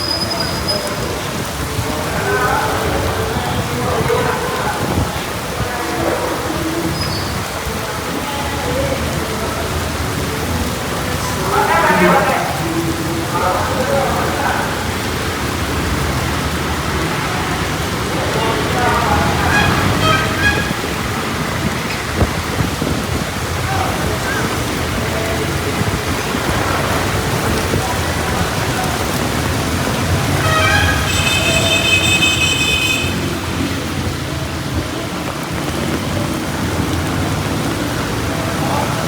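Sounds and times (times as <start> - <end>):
heavy rain falling: 0.0 - 39.0.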